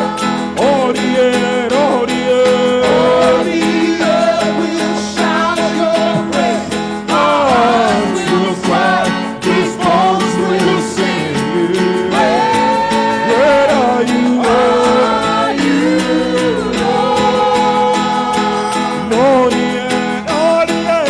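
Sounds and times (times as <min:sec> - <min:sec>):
guitar: 0:00.0 - 0:21.0
wordless singing voice: 0:00.0 - 0:21.0
steady drum beat: 0:02.1 - 0:10.7.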